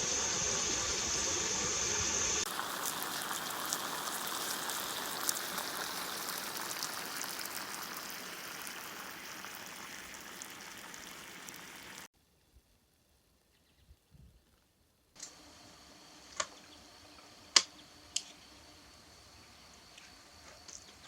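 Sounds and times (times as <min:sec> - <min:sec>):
hiss of falling water: 0:00.0 - 0:12.1
water drops ticking: 0:02.5 - 0:12.1.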